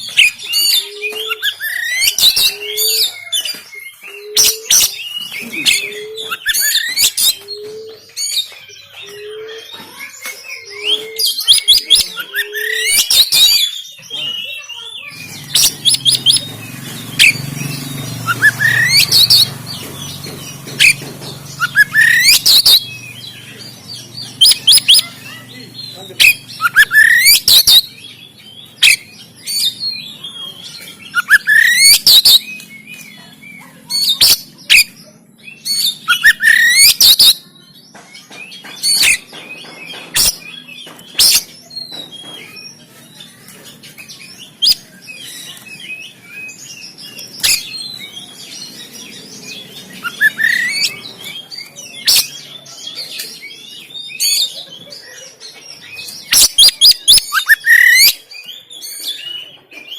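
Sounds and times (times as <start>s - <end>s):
bird singing whistled phrases: 18.2s - 19.5s, 21.6s - 23.4s, 24.4s - 25.4s, 26.2s - 28.0s, 31.1s - 33.3s, 35.6s - 37.5s, 50.0s - 52.4s, 56.3s - 58.2s.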